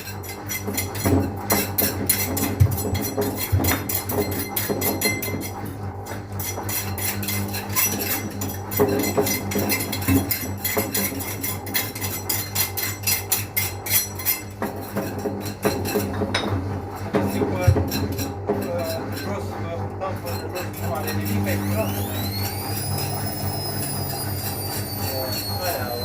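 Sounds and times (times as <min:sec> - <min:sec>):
washing machine motor hum: 0:00.0 - 0:26.0.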